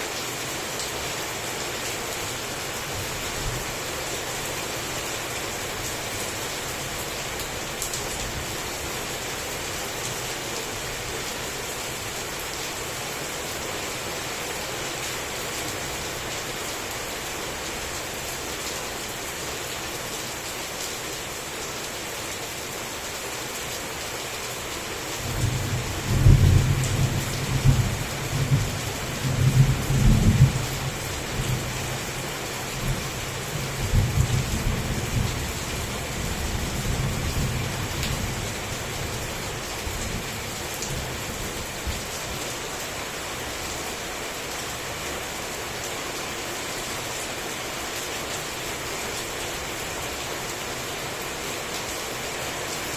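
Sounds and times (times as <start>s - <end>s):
heavy rain: 0.0s - 52.9s.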